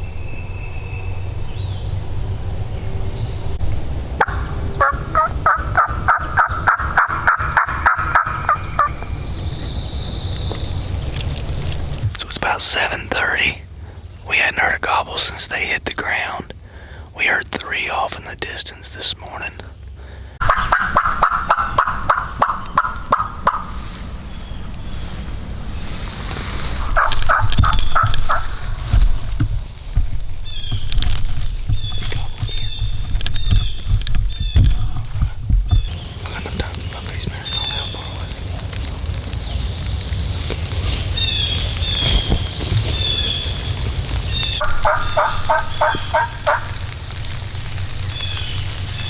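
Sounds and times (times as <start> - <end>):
turkey yelping: 4.2 - 9.0, 20.4 - 24.9, 26.7 - 28.8, 44.5 - 47.0.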